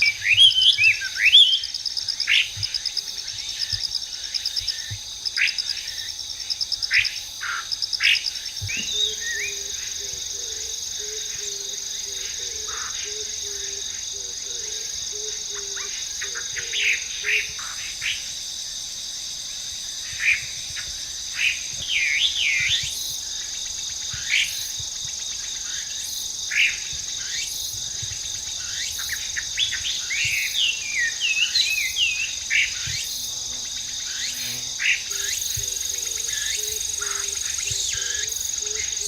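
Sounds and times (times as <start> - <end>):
bird singing whistled notes: 0.0 - 1.7
high insect drone: 0.0 - 39.0.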